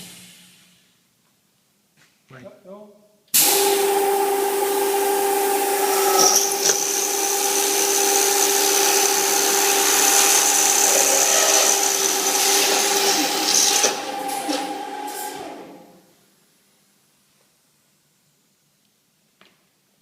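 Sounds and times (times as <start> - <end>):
high drill whine: 3.4 - 15.8
motor hum with hiss: 3.4 - 15.9.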